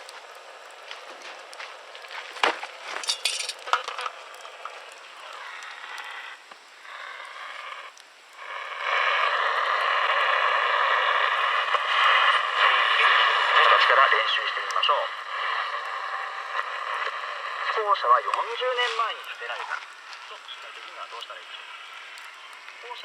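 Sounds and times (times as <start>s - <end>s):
radio static hissing: 0.0s - 23.0s
sharp cracks and clinks: 1.0s - 5.1s
radio station signal: 10.9s - 22.0s, 22.8s - 23.0s.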